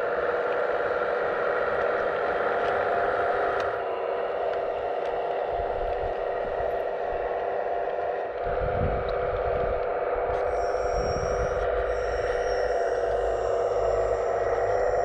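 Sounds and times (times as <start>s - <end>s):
hydraulic pump whine: 0.0s - 15.0s.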